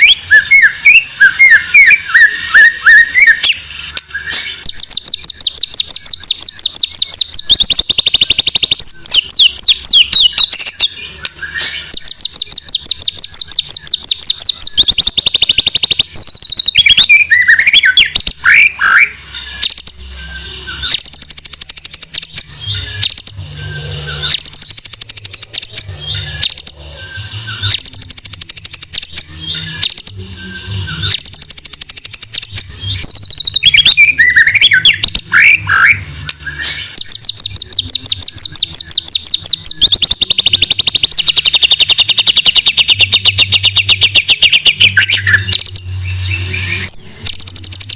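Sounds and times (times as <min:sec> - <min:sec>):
bird singing with rattling trills: 0:00.0 - 0:47.9.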